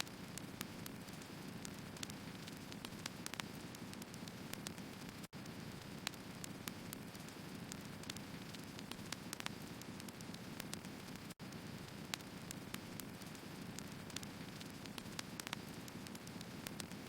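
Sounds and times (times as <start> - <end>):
wood crackling and popping: 0.0 - 17.0.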